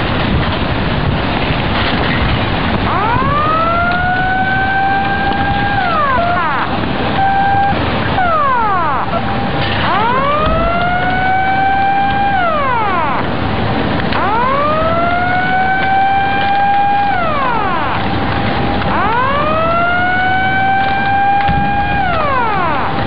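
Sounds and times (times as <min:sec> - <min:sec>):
steady noisy rumble: 0:00.0 - 0:23.0
siren wailing: 0:02.8 - 0:23.0.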